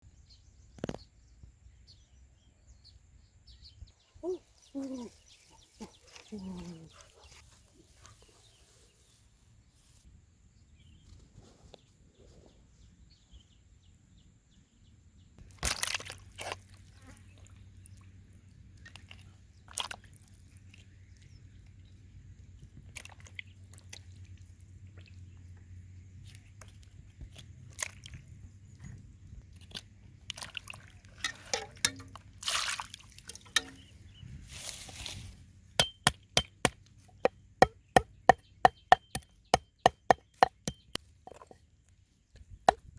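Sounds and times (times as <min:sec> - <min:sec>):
knife chopping on a board: 0:35.8 - 0:41.5.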